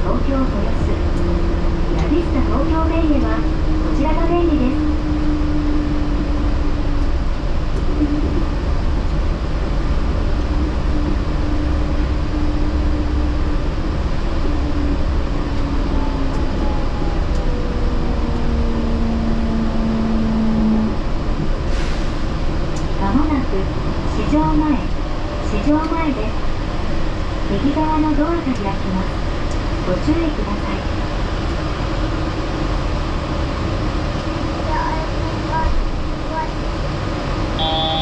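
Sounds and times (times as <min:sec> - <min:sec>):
train tyres rumbling: 0:00.0 - 0:38.0
faint whine: 0:37.6 - 0:38.0.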